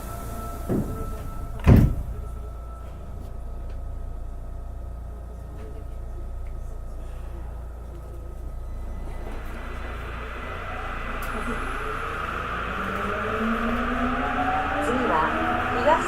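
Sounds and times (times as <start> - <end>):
sliding train doors closing: 0.0 - 3.2, 7.8 - 16.0
doors thumping shut: 1.6 - 2.1.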